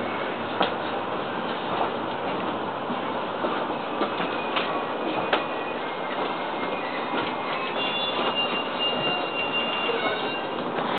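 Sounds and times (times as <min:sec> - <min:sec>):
train wheels on rail: 0:00.0 - 0:10.9
faint high brake tones: 0:04.5 - 0:10.6.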